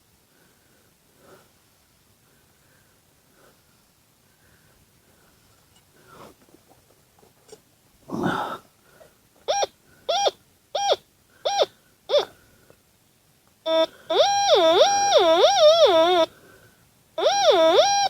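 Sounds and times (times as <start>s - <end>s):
metal detector beeps: 9.5s - 12.3s, 13.7s - 16.3s, 17.2s - 18.0s
metal detector warbling tone: 13.7s - 16.3s, 17.2s - 18.0s.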